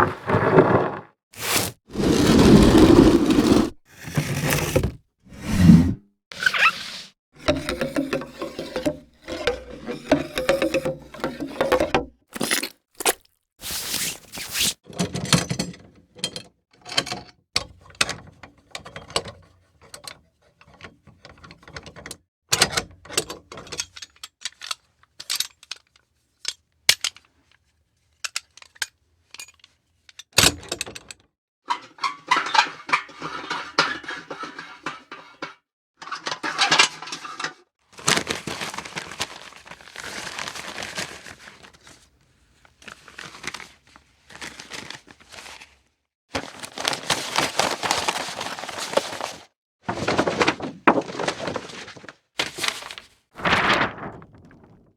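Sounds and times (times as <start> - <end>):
rustling and scraping: 0.0 - 14.8, 46.4 - 54.9
clinks and taps: 7.4 - 12.1.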